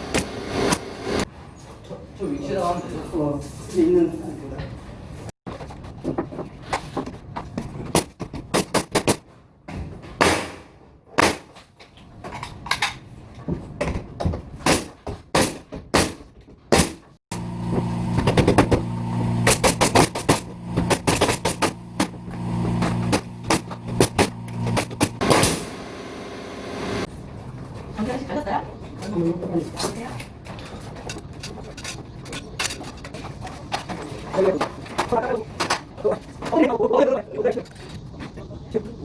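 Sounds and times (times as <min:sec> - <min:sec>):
pneumatic nail gun shots: 0:10.2 - 0:11.6, 0:14.7 - 0:17.0, 0:19.4 - 0:22.2, 0:22.8 - 0:25.9
steady low hum: 0:17.3 - 0:27.1.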